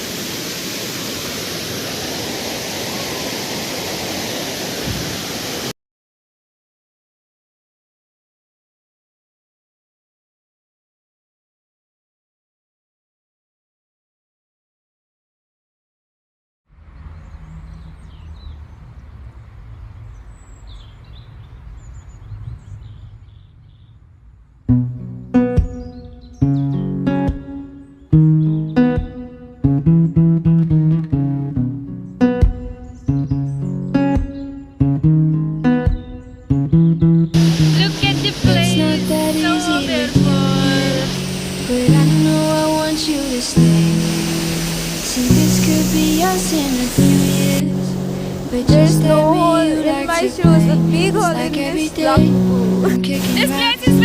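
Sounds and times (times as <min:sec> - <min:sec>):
waterfall rushing: 0:00.0 - 0:05.8, 0:37.4 - 0:54.0
birds chirping: 0:16.9 - 0:24.4, 0:25.4 - 0:30.5, 0:31.9 - 0:54.0.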